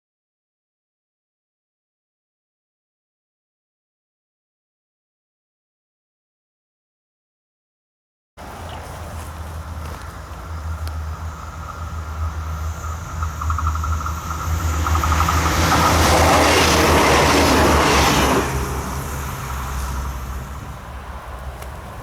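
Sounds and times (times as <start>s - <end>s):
steady low hum: 8.4s - 22.0s
train passing: 8.4s - 22.0s.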